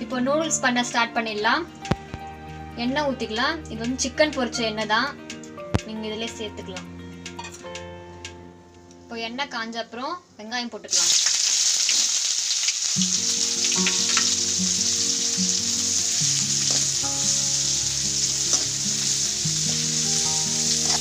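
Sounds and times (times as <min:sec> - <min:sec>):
soft background music: 0:00.0 - 0:10.9, 0:12.9 - 0:21.0
onions sizzling in oil: 0:10.9 - 0:21.0
stirring ticks: 0:18.0 - 0:21.0.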